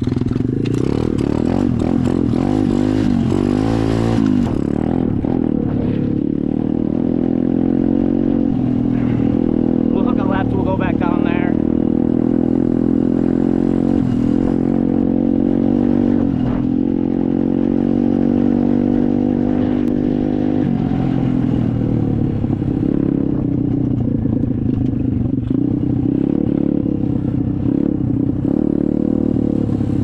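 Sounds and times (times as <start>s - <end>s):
dirt bike engine running: 0.0s - 30.0s.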